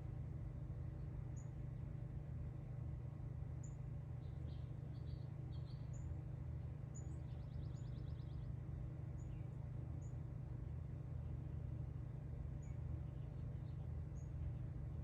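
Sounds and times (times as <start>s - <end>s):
steady low hum: 0.0s - 15.0s
small birds chirping: 3.6s - 6.2s, 6.9s - 10.2s, 12.6s - 14.8s.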